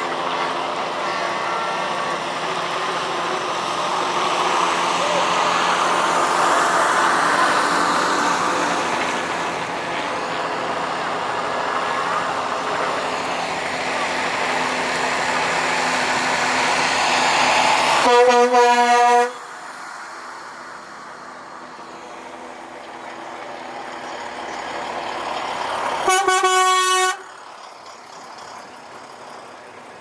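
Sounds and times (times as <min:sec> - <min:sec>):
trucks passing: 0:00.0 - 0:30.0
higher-pitched truck horn blast: 0:18.0 - 0:19.4, 0:26.0 - 0:27.3
truck horn: 0:18.0 - 0:19.5, 0:26.0 - 0:27.4.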